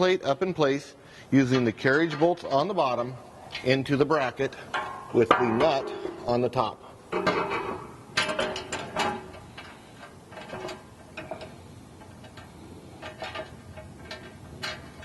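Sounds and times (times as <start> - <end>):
metal ticks: 4.6 - 6.1.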